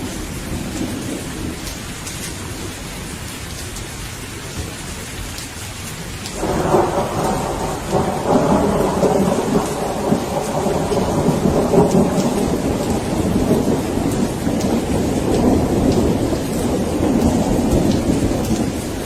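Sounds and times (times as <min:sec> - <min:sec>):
steady rain: 0:00.0 - 0:19.0
thunder rolling: 0:06.3 - 0:19.0.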